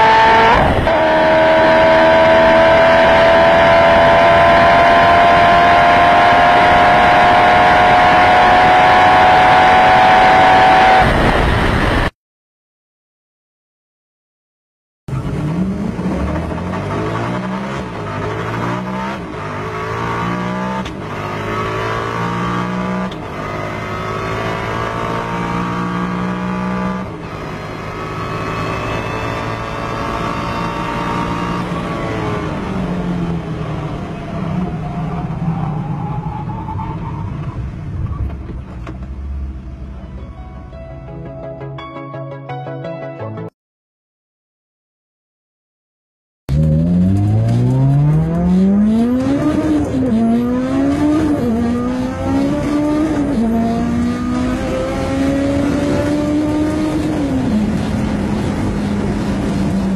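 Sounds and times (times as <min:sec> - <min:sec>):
car engine at full throttle: 0:00.0 - 0:12.1, 0:15.1 - 0:40.0, 0:46.5 - 0:59.9
car engine winding down: 0:46.5 - 0:59.9.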